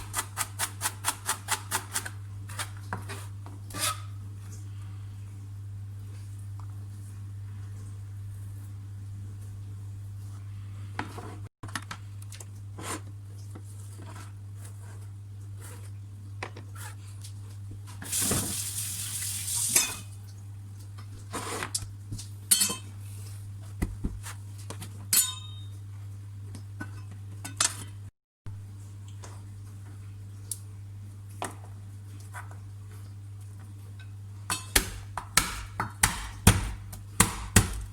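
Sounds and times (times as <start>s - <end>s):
dishes and utensils clinking: 22.5s - 23.0s, 25.1s - 25.8s.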